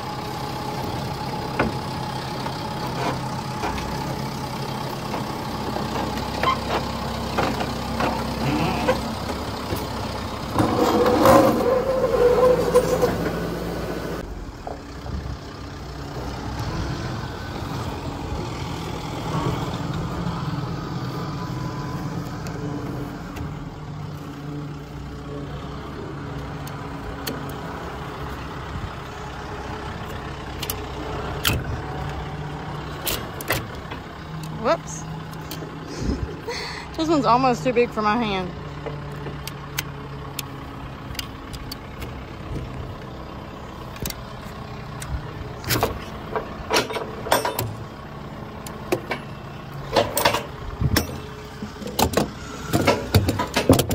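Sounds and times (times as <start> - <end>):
truck engine running: 0.0 - 53.9
rattling clatter: 0.7 - 13.4, 45.6 - 48.1, 48.8 - 53.9
clanks and knocks: 5.0 - 9.9, 45.7 - 47.9, 48.9 - 53.9.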